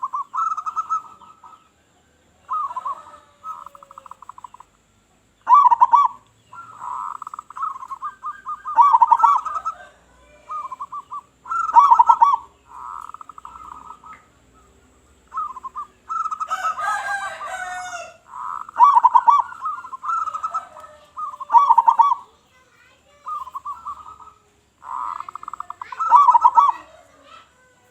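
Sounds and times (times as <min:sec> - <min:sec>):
doves cooing: 0:00.0 - 0:27.9
harsh high bird call: 0:05.5 - 0:14.3, 0:15.3 - 0:27.9.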